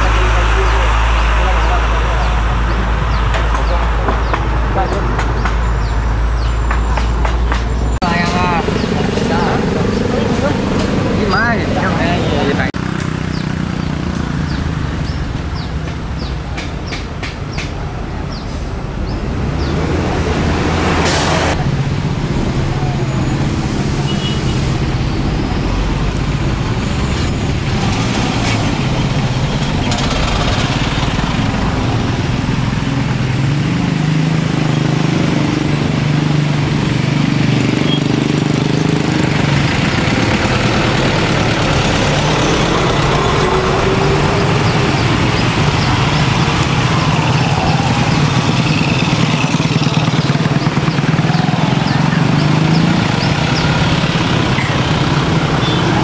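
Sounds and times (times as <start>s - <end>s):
heavy truck engine running: 20.0s - 33.5s, 37.6s - 56.0s.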